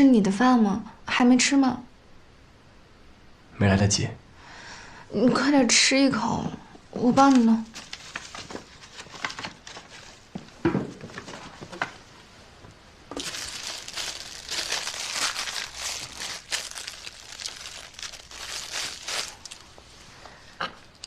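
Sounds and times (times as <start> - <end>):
food packaging crinkling: 7.2 - 10.5, 13.1 - 19.9.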